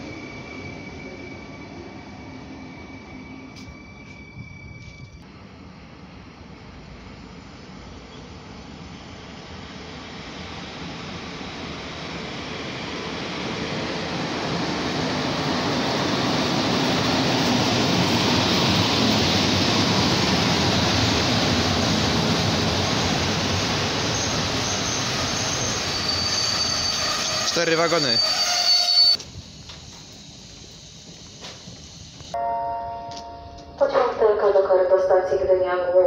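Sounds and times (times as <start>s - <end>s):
high wheel squeal: 0.0s - 5.2s, 23.9s - 29.2s
train wheels rumbling on rail: 0.0s - 32.4s.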